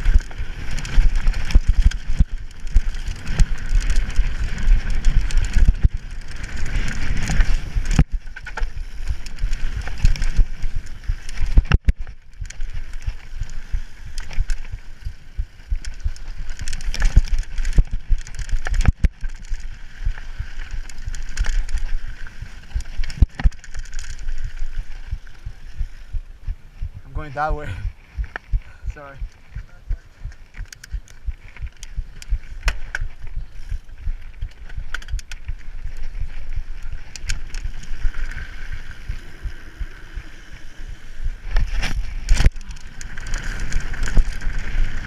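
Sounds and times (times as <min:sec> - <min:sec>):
bike tyres and rattle: 0:00.0 - 0:45.0
wind on microphone: 0:20.0 - 0:45.0.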